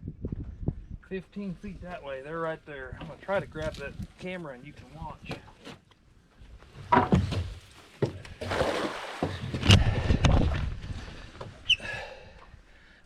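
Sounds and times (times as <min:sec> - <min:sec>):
net splashing into water: 0:08.4 - 0:09.6.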